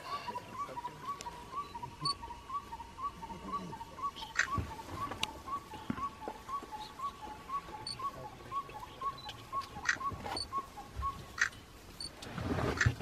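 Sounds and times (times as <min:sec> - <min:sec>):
faint high chirps: 0:00.0 - 0:12.1.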